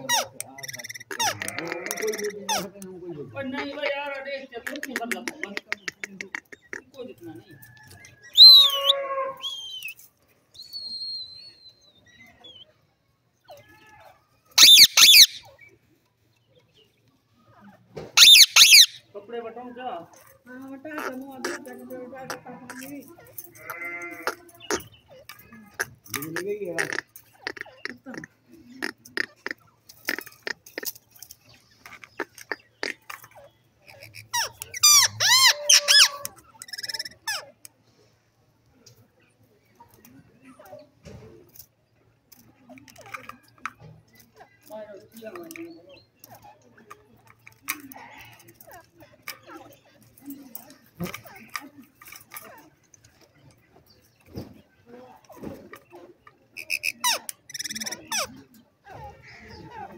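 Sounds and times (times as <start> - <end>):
parakeet calling: 0.0 - 2.7, 8.3 - 9.9, 14.5 - 15.7, 18.2 - 19.1, 32.1 - 37.6, 56.5 - 58.4
parakeet harsh screeches: 0.0 - 2.7, 8.4 - 9.8, 14.6 - 15.5, 18.2 - 19.0, 33.8 - 37.5, 56.6 - 58.4
parakeet clicks and chirps: 0.1 - 2.9, 14.6 - 15.6, 18.2 - 19.0, 22.3 - 37.8, 55.3 - 58.4
parakeet high whistle: 8.4 - 9.8, 14.6 - 15.4, 18.2 - 19.0.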